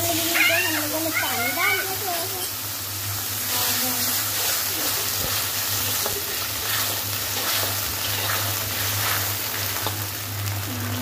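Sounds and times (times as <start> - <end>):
vegetables sizzling in a wok: 0.0 - 11.0.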